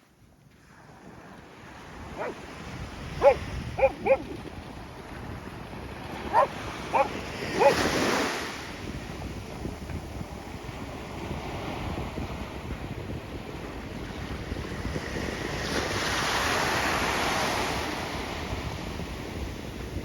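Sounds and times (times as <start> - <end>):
surf washing on shore: 0.6 - 20.0
wind noise on microphone: 0.7 - 20.0
dog barking: 2.1 - 2.4, 3.2 - 4.4, 6.3 - 8.0.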